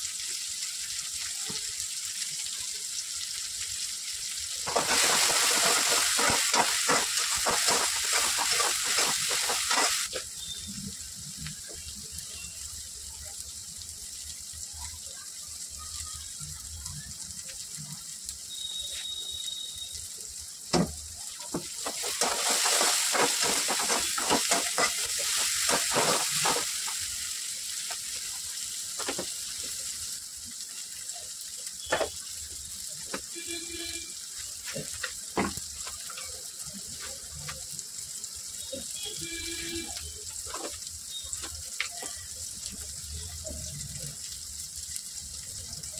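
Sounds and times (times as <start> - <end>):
vegetables sizzling in oil: 0.0 - 45.9
metal spatula scraping pan: 4.7 - 10.1, 21.8 - 26.7.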